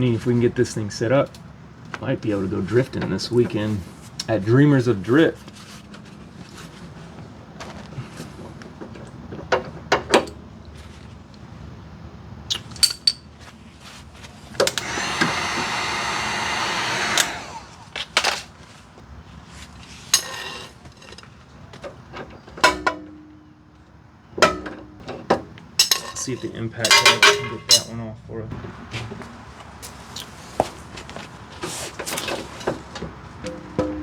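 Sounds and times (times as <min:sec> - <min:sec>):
metal tools clinking: 0:12.7 - 0:13.4, 0:20.1 - 0:23.6, 0:24.4 - 0:28.0
power tool whirring: 0:14.5 - 0:18.4.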